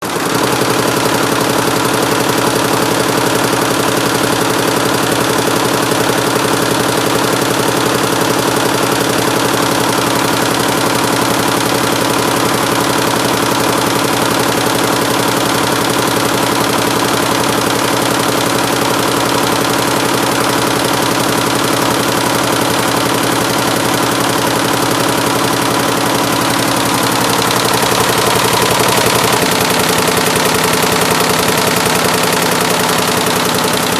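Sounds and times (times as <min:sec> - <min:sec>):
embroidery machine clatter: 0:00.0 - 0:33.9
motor hum: 0:08.7 - 0:33.9.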